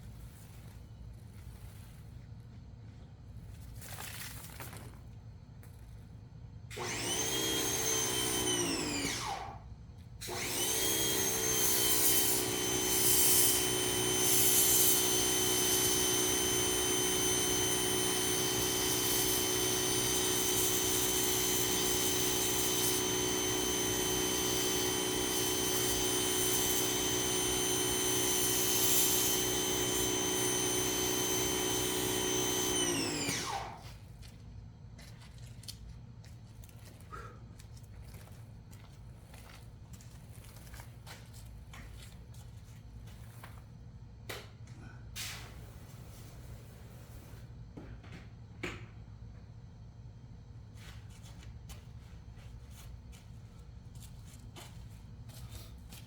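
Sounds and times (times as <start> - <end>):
pressure washer whine and hum: 6.7 - 9.6, 10.2 - 34.0.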